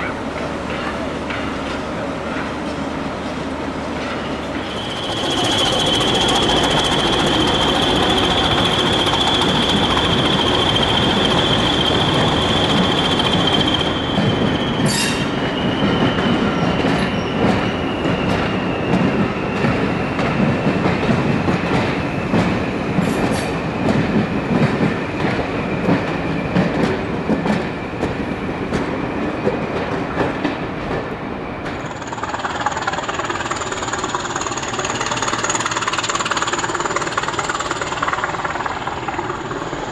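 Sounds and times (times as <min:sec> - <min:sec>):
train rumble: 0:00.0 - 0:39.9
high wheel squeal: 0:04.2 - 0:20.8, 0:31.8 - 0:39.9.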